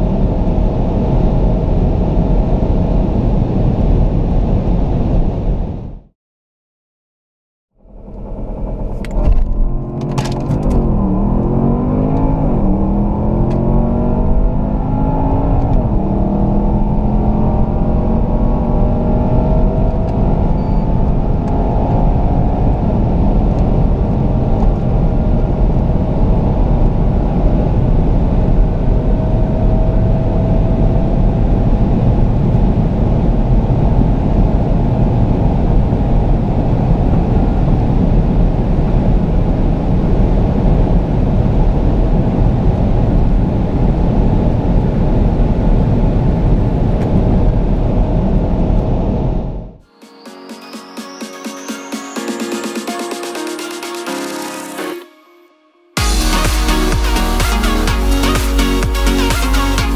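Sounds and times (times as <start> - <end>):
road and wind noise: 0.0 - 6.1, 7.8 - 49.8
car engine accelerating: 7.8 - 49.8, 56.0 - 59.9.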